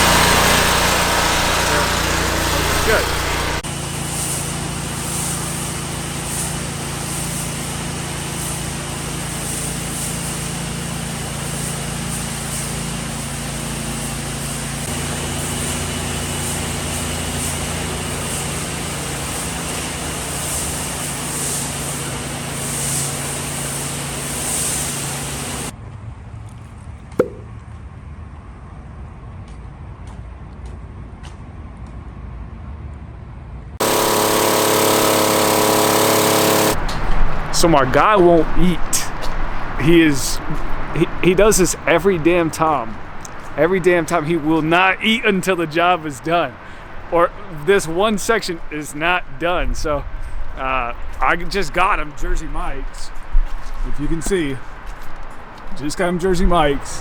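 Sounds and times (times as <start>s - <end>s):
high-pressure water spraying: 0.0s - 25.7s, 33.8s - 49.2s
pressure washer engine running: 0.0s - 25.7s, 33.8s - 57.0s
sharp click: 27.2s - 27.5s.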